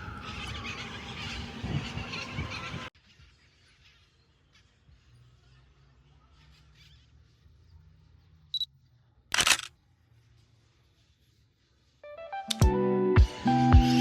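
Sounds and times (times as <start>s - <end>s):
camera shutter click: 9.3s - 9.7s.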